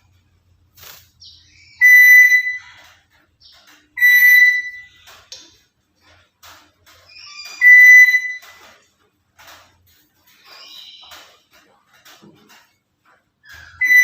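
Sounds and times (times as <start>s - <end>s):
parrot whistles: 1.7s - 2.7s, 4.0s - 4.9s, 7.4s - 8.4s, 13.7s - 14.0s.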